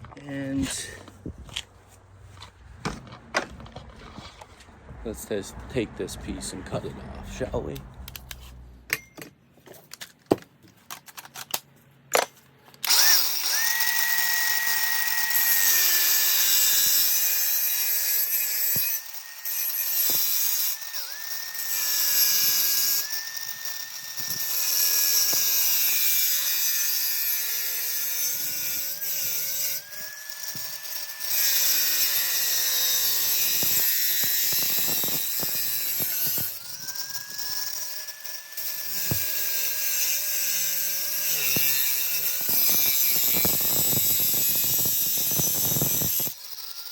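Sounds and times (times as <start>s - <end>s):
power tool motor whining: 12.8s - 46.9s
metal being cut hissing: 12.9s - 46.9s.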